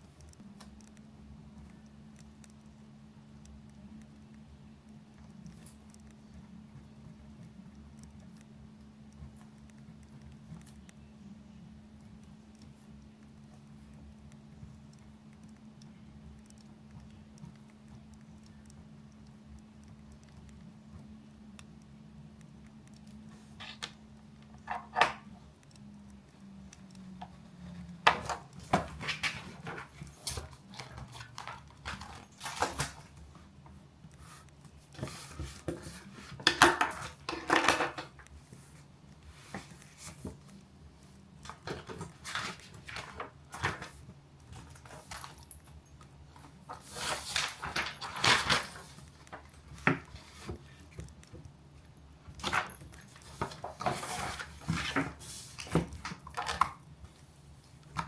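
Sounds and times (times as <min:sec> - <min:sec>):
faint low hum: 0:00.0 - 0:58.0
pen and paper rustling: 0:26.8 - 0:45.2, 0:46.4 - 0:51.5, 0:52.3 - 0:58.0.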